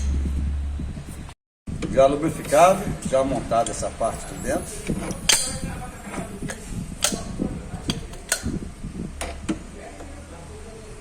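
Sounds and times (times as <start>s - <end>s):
sharp metallic clicks and knocks: 5.1s - 5.7s, 6.5s - 8.6s.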